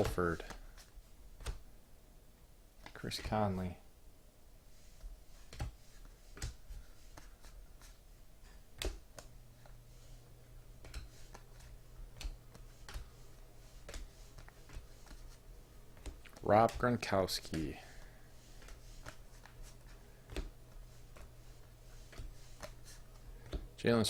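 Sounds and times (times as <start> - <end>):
trading cards being flipped: 0.4 - 1.6, 10.8 - 17.7, 18.4 - 23.7.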